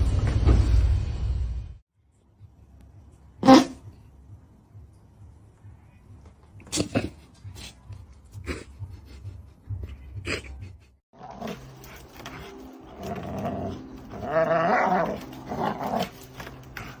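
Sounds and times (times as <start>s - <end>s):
dog growling: 11.2s - 17.0s.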